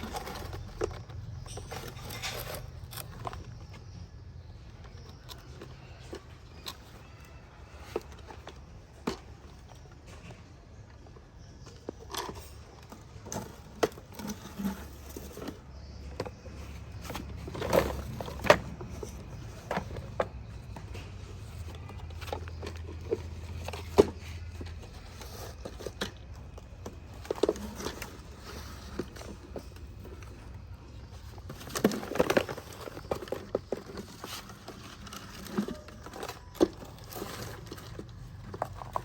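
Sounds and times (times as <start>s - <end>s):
plastic toy clicks and scrapes: 0.0s - 9.4s, 11.8s - 39.0s.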